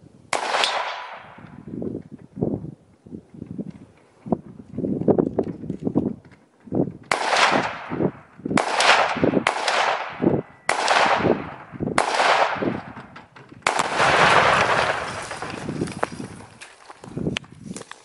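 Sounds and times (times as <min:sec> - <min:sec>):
rifle shots echoing: 0:00.3 - 0:01.7, 0:07.1 - 0:16.0.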